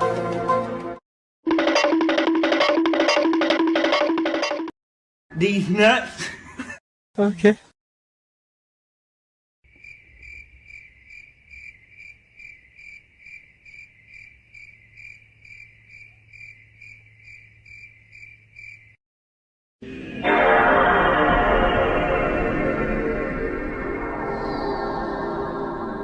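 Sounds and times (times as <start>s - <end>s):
loud music: 1.5s - 4.7s
crickets chirping: 9.7s - 19.0s.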